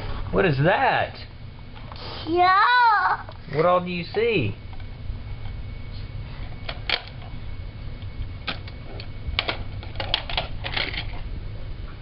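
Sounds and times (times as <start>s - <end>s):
low steady hum: 0.0s - 12.0s
clicks and rattles of objects handled: 6.4s - 7.4s, 8.0s - 11.3s.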